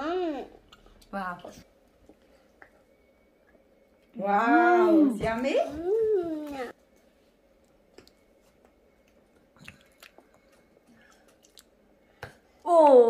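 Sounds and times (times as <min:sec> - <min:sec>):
children chewing chocolate: 0:07.6 - 0:12.6.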